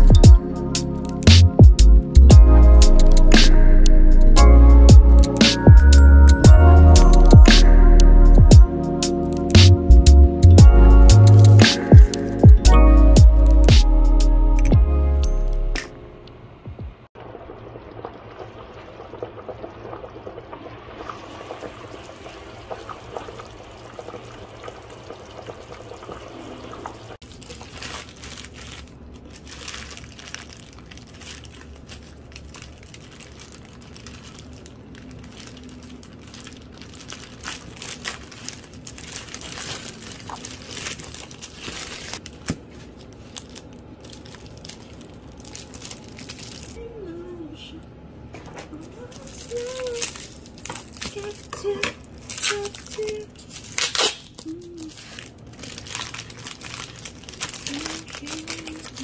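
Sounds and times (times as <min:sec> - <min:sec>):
pouring or trickling: 0:17.2 - 0:42.3, 0:43.2 - 0:46.8
crinkling and rustling: 0:27.2 - 0:46.8, 0:48.3 - 0:59.0.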